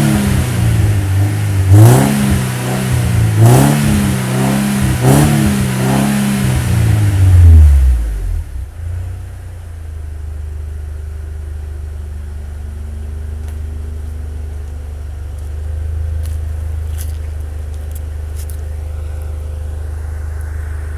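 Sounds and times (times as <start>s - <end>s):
car engine revving: 0.0s - 9.5s
car engine deep idle: 7.0s - 20.9s.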